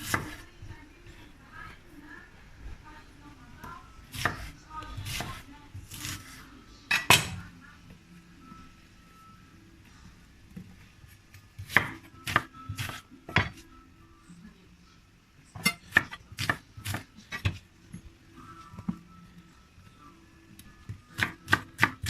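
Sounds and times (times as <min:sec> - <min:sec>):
knife chopping on cutting board: 0:00.0 - 0:00.4, 0:04.1 - 0:06.3, 0:11.6 - 0:13.6, 0:15.6 - 0:17.6, 0:21.2 - 0:22.0.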